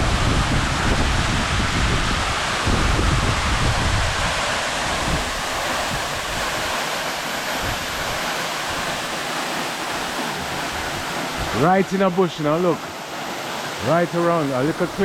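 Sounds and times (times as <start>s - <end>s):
wind buffeting microphone: 0.0s - 9.1s, 10.0s - 11.8s
rush of falling water: 0.0s - 15.0s.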